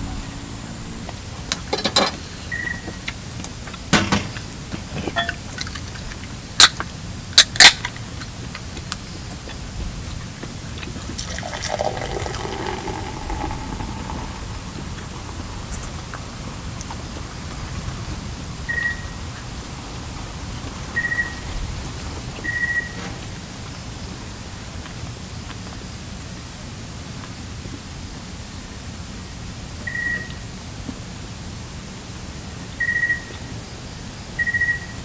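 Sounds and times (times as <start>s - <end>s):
liquid being poured: 11.0s - 16.5s.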